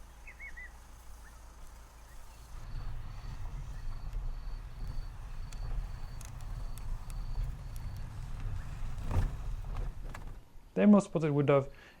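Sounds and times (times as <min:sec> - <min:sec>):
vehicle engine rumble: 0:00.0 - 0:10.8
bird chirps: 0:00.2 - 0:08.9.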